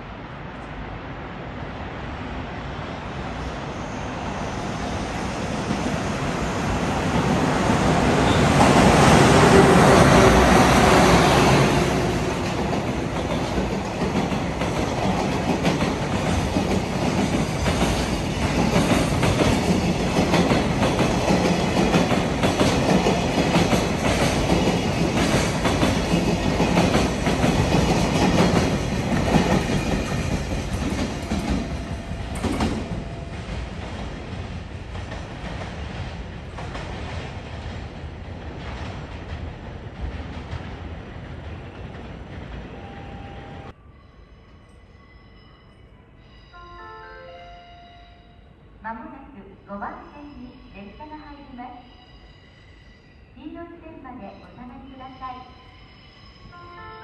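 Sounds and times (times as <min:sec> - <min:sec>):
train passing: 0:00.0 - 0:57.0.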